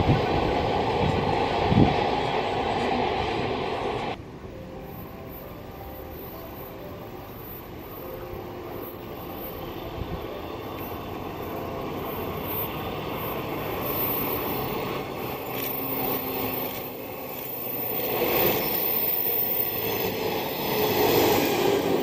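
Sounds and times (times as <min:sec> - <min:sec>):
train wheels on rails: 0:00.0 - 0:04.2, 0:08.7 - 0:22.0.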